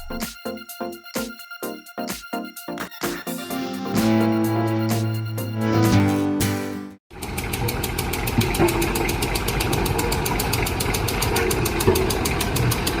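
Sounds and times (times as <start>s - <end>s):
music: 0.0s - 7.0s
diesel engine idling: 7.1s - 13.0s.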